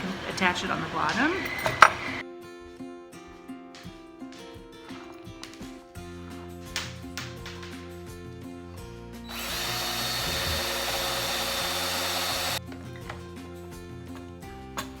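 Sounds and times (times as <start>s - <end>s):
soft background music: 0.0s - 15.0s
electric drill boring: 9.3s - 12.6s.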